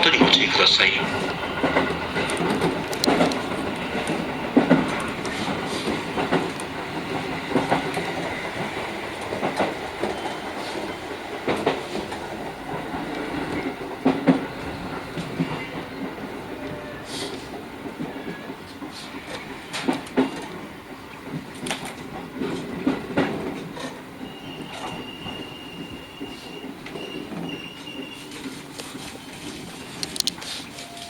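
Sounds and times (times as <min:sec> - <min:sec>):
train wheels knocking over rail joints: 0:00.0 - 0:30.1
steady train rumble: 0:00.0 - 0:31.0.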